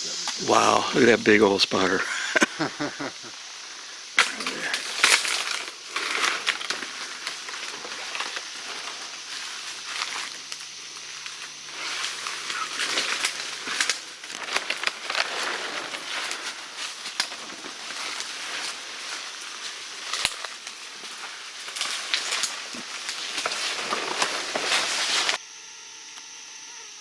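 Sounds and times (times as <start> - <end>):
twigs snapping underfoot: 4.2 - 9.2, 12.0 - 25.4
footsteps through wet undergrowth: 5.0 - 25.4.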